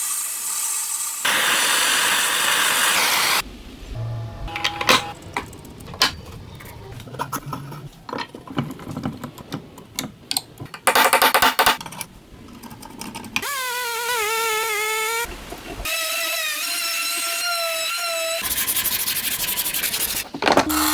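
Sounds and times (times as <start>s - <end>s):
metal parts clicking and knocking: 4.5s - 13.5s, 20.2s - 20.9s
small power tool whirring: 13.4s - 18.6s, 20.6s - 20.9s.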